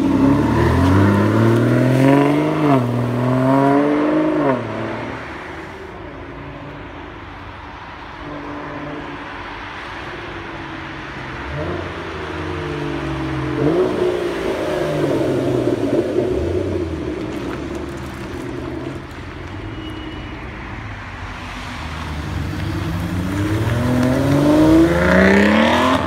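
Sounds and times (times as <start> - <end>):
sports car engine revving: 11.5 - 17.2, 22.3 - 26.0.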